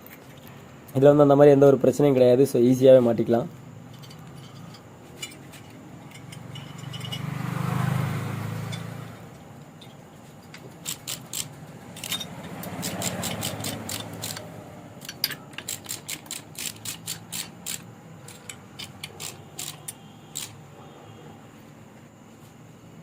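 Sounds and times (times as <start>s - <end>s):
ratchet wrench clicking: 3.9s - 7.3s, 10.8s - 20.6s.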